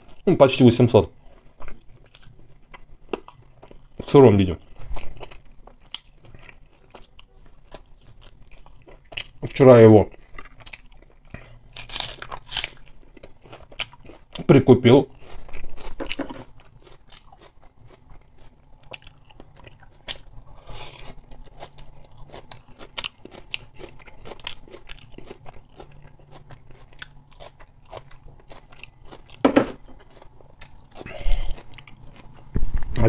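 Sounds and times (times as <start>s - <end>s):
close chewing with crunches: 0.0s - 33.0s.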